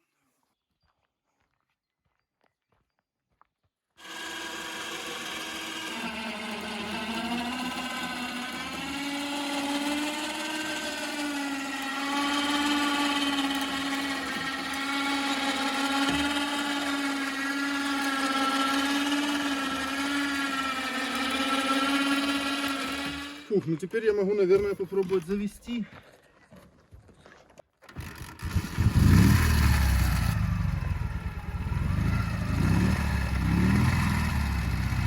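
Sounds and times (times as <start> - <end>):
winch motor whining under load: 4.0 - 23.6, 27.9 - 35.0.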